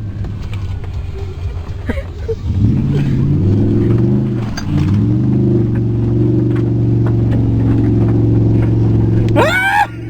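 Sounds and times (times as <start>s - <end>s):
truck engine revving hard: 1.8s - 10.0s.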